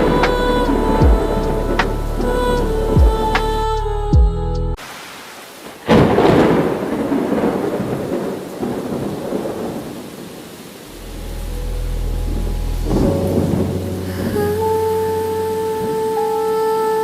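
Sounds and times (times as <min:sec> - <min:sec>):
thunderclap rumbling: 0:00.0 - 0:03.6, 0:05.7 - 0:16.0
rain falling: 0:00.0 - 0:04.0, 0:04.8 - 0:17.0.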